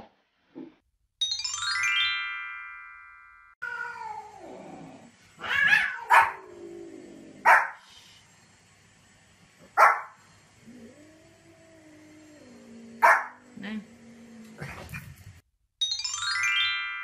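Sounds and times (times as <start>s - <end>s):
dog barking: 5.7s - 6.4s, 7.4s - 7.8s, 9.8s - 10.2s, 13.0s - 13.4s.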